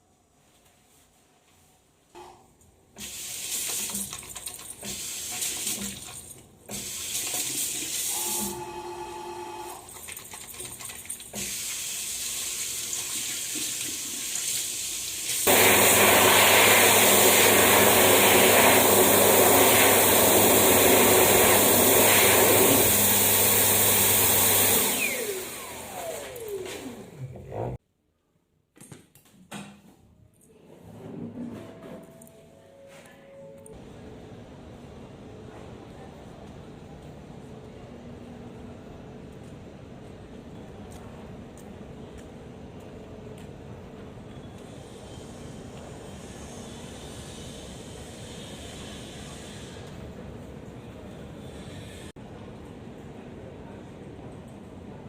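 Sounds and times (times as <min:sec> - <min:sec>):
water running from a tap: 0:03.0 - 0:08.4, 0:09.9 - 0:16.0
electric hand dryer blowing: 0:06.7 - 0:09.8, 0:15.3 - 0:27.4.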